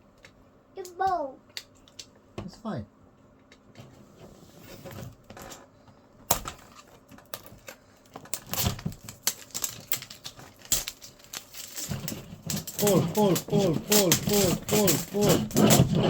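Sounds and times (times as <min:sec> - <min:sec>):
packaging crinkling: 0:06.7 - 0:15.3.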